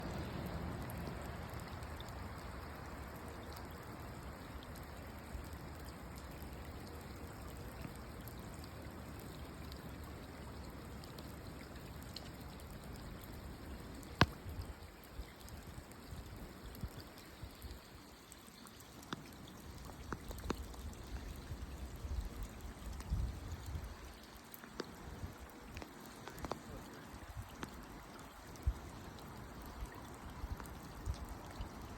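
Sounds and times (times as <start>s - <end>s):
water dripping and splashing: 0.0s - 31.9s
water rushing: 18.4s - 31.9s.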